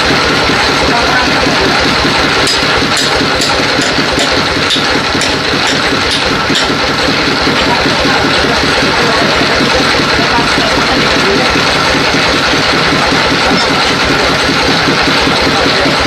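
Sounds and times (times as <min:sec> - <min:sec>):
heavy engine running: 0:00.0 - 0:16.0.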